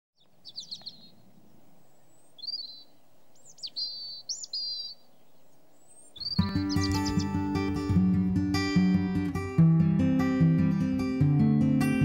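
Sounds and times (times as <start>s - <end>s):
songbird chirping and trilling: 0.2s - 9.3s
faint outdoor background: 0.2s - 12.0s.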